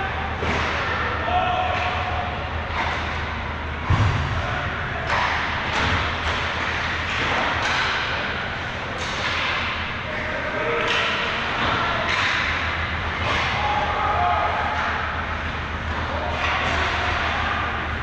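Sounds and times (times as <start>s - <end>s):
heavy thud: 3.8s - 5.0s
skates scraping and sticks clacking: 5.0s - 17.8s.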